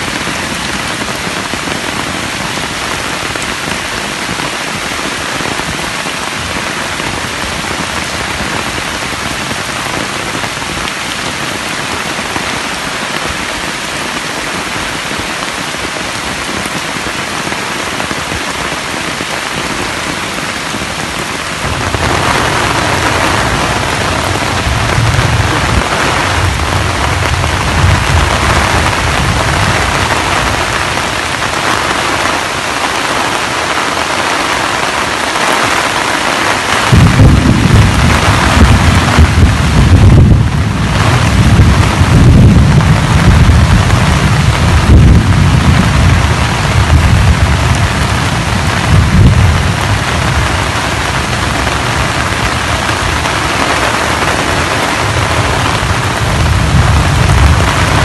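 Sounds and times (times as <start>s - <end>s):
steady rain falling: 0.0s - 58.0s
low rumble: 36.9s - 50.4s.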